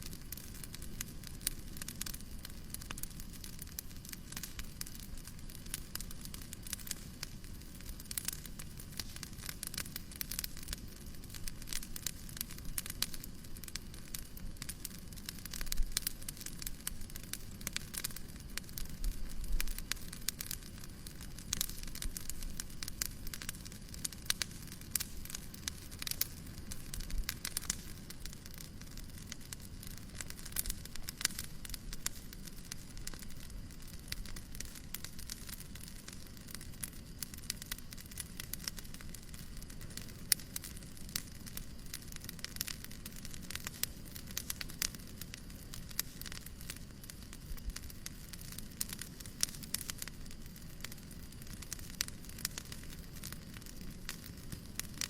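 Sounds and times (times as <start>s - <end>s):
fireplace crackling: 0.0s - 55.0s.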